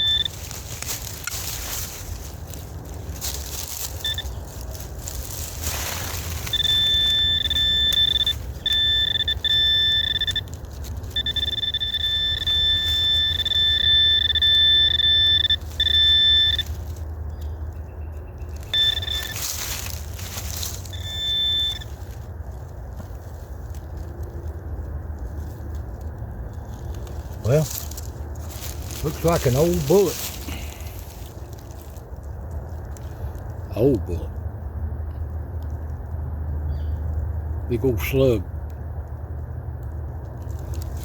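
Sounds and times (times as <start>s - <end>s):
metal detector beeps: 0.0s - 0.6s, 3.4s - 4.4s, 5.9s - 16.9s, 18.4s - 22.1s.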